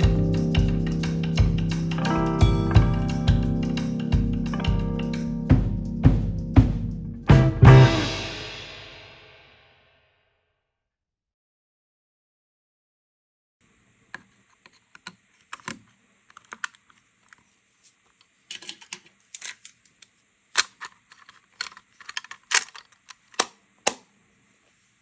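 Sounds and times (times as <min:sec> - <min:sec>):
small parts clicking and tapping: 0:14.1 - 0:24.0.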